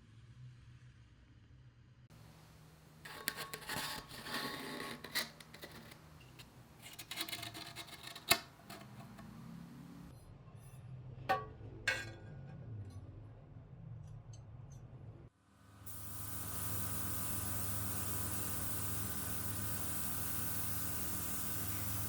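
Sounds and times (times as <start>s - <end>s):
scraping and rubbing metal parts: 3.1s - 9.4s.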